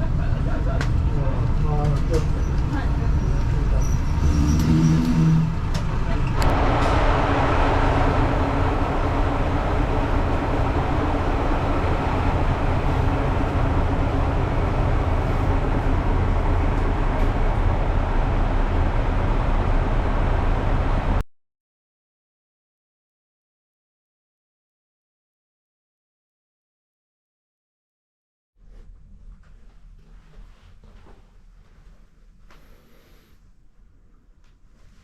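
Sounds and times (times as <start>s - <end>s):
train rumbling: 0.0s - 21.2s.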